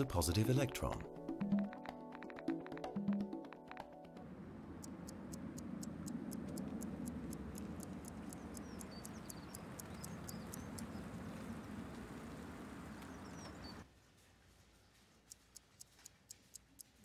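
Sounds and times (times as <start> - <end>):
car engine rumbling: 4.2 - 13.8
light rapid ticking: 4.6 - 13.9, 15.0 - 17.0
faint bird chirps: 7.0 - 13.8.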